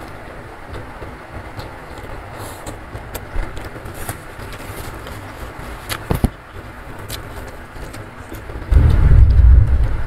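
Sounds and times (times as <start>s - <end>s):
heavy rain: 8.5s - 10.0s.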